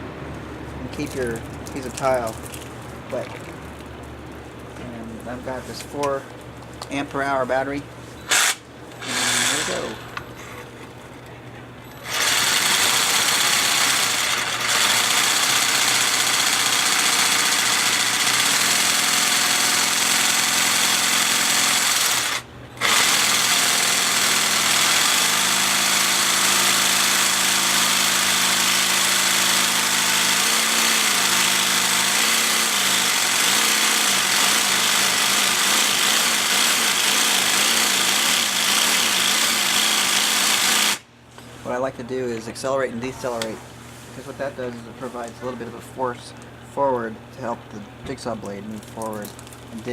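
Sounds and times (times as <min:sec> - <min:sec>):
jigsaw cutting tile: 0:08.3 - 0:10.0, 0:12.1 - 0:41.0.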